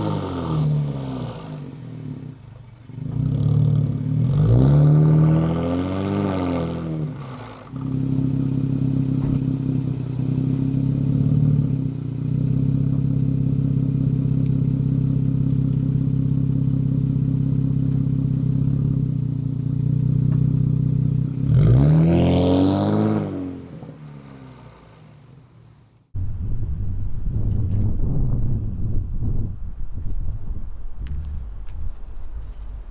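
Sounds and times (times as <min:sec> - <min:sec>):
car engine revving and idling: 0:00.0 - 0:26.1
faint high hiss: 0:06.0 - 0:21.5.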